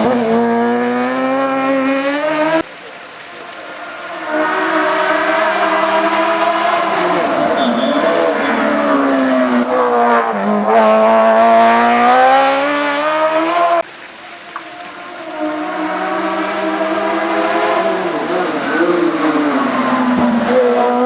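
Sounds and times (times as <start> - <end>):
race car engine at high revs: 0.0 - 21.0
tyre squeal: 3.6 - 11.6.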